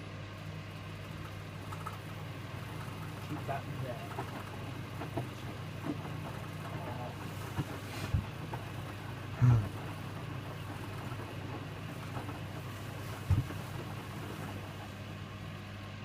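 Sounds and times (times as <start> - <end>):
washing machine humming: 0.0 - 16.0
low thuds of drum: 13.2 - 13.9.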